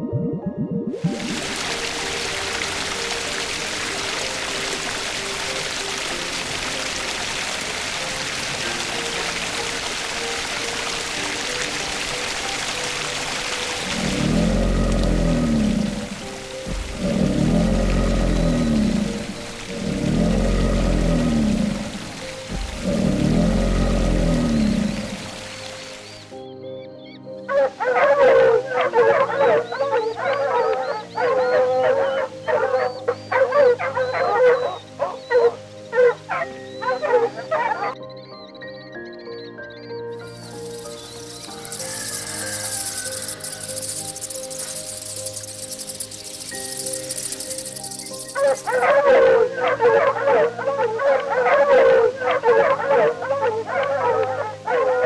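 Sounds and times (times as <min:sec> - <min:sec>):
background music: 0:00.0 - 0:55.0
pack of canids howling and yipping: 0:01.2 - 0:25.6, 0:40.3 - 0:55.0.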